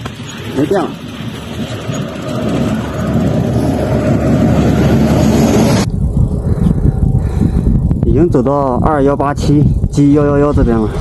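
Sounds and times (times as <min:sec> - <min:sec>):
vehicle passing on highway: 0:00.0 - 0:08.0.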